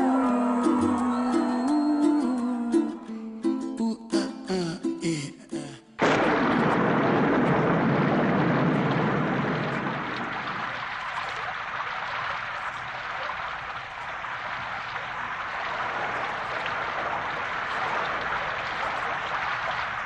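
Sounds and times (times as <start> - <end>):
rain hiss and patter: 6.0 - 20.0.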